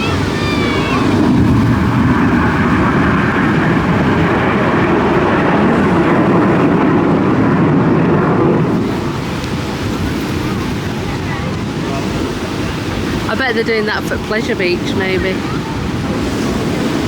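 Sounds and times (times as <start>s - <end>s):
aircraft flying past: 0.0s - 17.0s.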